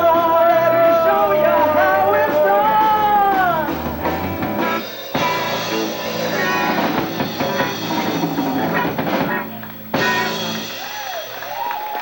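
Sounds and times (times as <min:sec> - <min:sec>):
live rock band playing: 0:00.0 - 0:12.0
full-band hit: 0:02.1 - 0:10.9.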